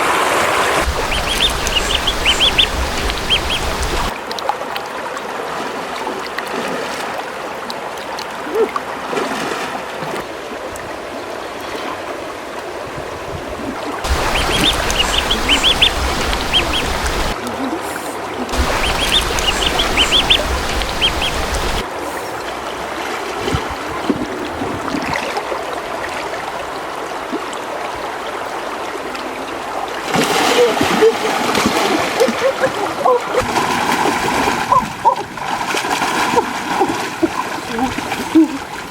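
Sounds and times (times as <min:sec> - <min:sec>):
birds calling: 0:00.6 - 0:04.1, 0:14.0 - 0:17.4, 0:18.5 - 0:21.8.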